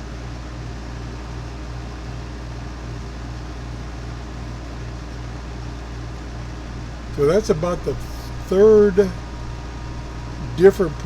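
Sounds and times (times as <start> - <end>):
low hum: 6.0 - 11.0
radio static hiss: 6.5 - 11.0.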